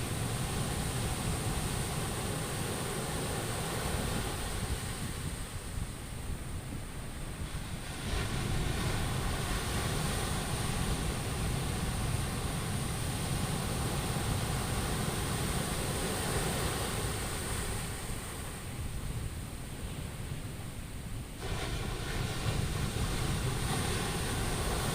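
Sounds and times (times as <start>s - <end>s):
sea surf washing on shore: 0.0s - 24.9s.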